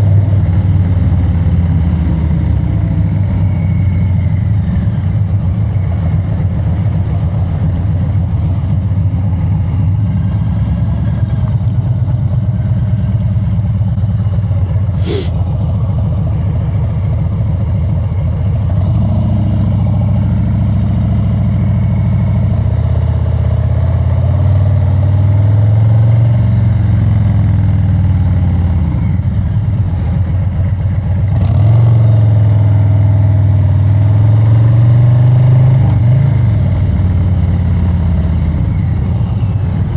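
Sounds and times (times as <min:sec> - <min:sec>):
motorcycle engine rumbling: 0:00.9 - 0:20.9.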